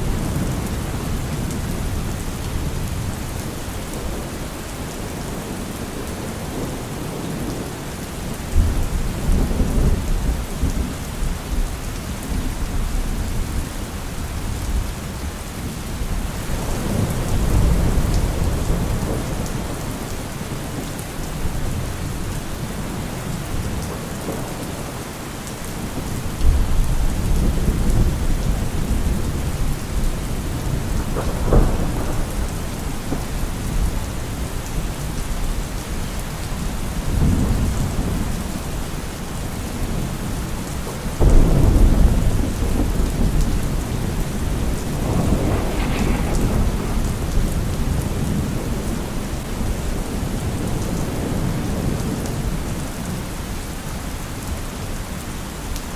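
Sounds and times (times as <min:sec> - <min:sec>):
low thunder rumbling: 0:00.0 - 0:11.7, 0:15.9 - 0:20.8, 0:25.8 - 0:53.2
heavy rain falling: 0:00.0 - 0:55.9
loud thunder clap: 0:30.5 - 0:34.0, 0:41.2 - 0:52.0.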